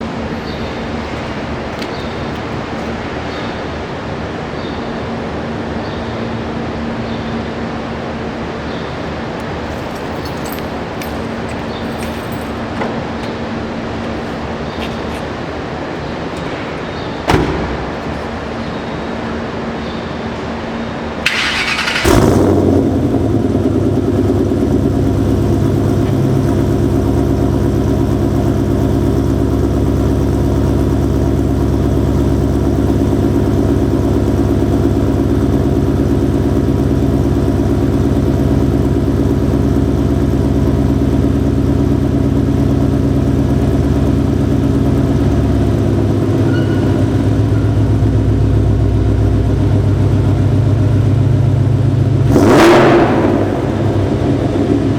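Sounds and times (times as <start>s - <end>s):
car engine idling loudly: 6.4s - 20.0s, 21.2s - 54.9s
engine starter cranking: 21.2s - 23.1s.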